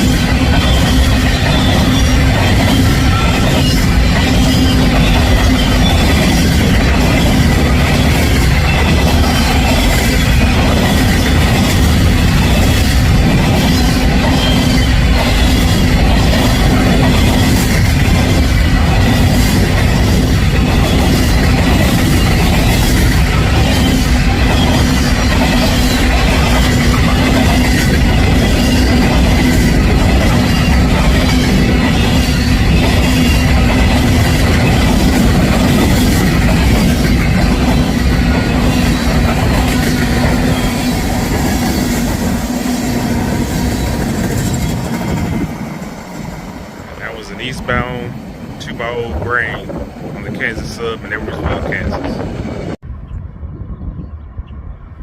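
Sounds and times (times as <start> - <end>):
ringing tone from wheels: 0.0 - 42.5
freight train cars rumbling past: 0.0 - 55.0.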